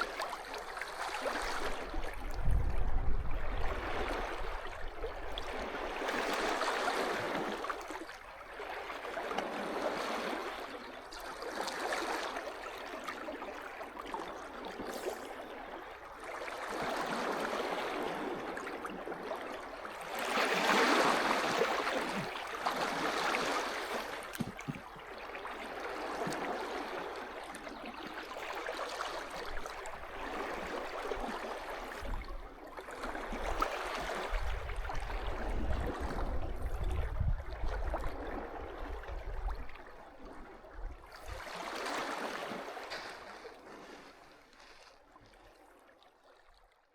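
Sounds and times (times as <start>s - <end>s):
sea waves washing onto shore: 0.0s - 8.0s, 16.6s - 27.3s.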